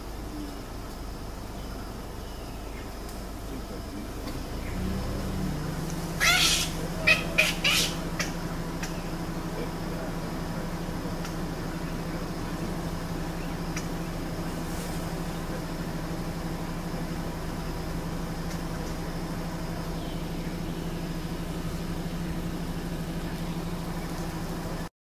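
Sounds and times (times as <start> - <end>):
vehicle engine idling: 0.0 - 24.9
faint clicks: 3.0 - 3.2.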